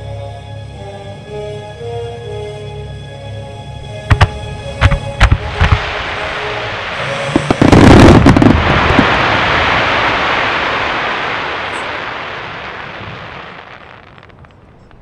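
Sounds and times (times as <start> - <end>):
fireworks bursting with loud bangs: 4.1 - 15.0
wash of noise: 5.2 - 14.0.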